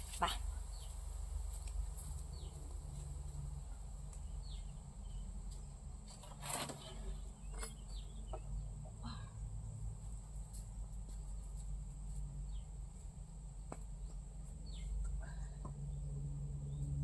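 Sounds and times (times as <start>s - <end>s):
bird chirps: 7.4s - 8.6s
low rumble: 14.8s - 17.0s.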